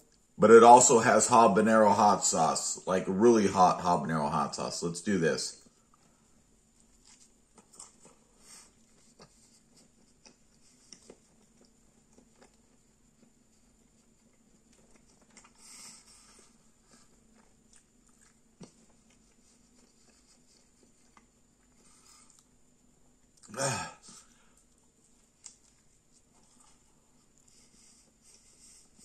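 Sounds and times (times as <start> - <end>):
person chewing food: 5.6 - 29.0
breathy hiss: 8.2 - 9.7, 15.5 - 17.2, 23.5 - 24.7.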